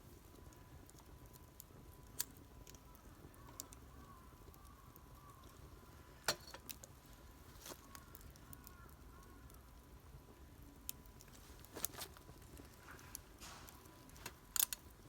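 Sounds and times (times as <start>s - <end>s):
wood fire crackling: 0.0s - 15.0s
sharp pops of fire: 10.8s - 15.0s.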